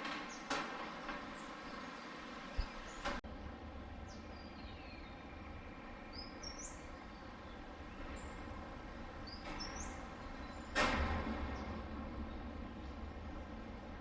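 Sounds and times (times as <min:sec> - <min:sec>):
rainforest birds calling: 0:01.3 - 0:03.2, 0:04.1 - 0:08.4
low rumble: 0:06.9 - 0:14.0.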